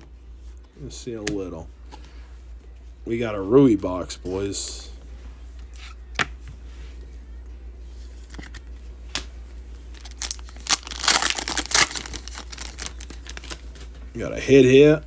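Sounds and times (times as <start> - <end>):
low steady hum: 0.0 - 15.0
cards sliding against each other: 8.0 - 9.3
wrapper tearing and crinkling: 9.9 - 13.9.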